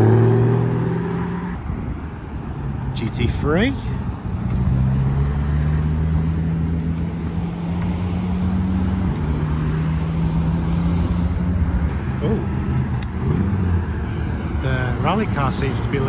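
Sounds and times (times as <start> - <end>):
car engine running at low revs: 10.2 - 15.4.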